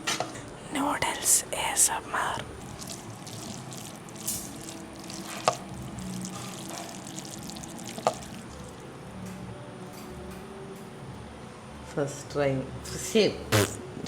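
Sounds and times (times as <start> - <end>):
noodles being stirred in a pan: 2.6 - 8.9.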